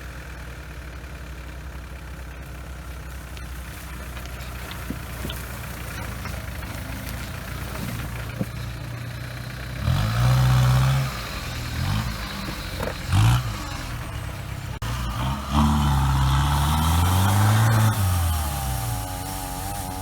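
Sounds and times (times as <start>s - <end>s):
engine revving over idle: 0.0s - 20.0s.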